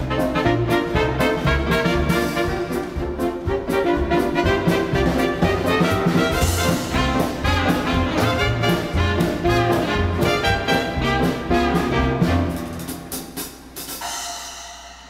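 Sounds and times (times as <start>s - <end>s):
swing band with brass: 0.0s - 14.6s.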